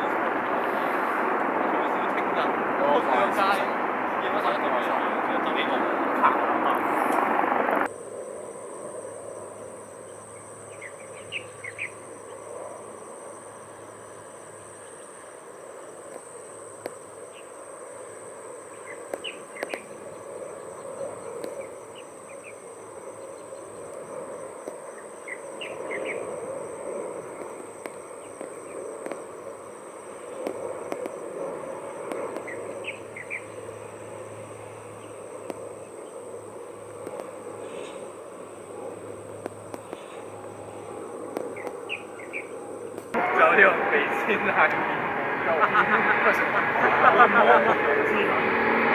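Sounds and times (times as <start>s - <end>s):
insects buzzing: 0.0s - 48.9s
low steady hum: 43.2s - 48.9s.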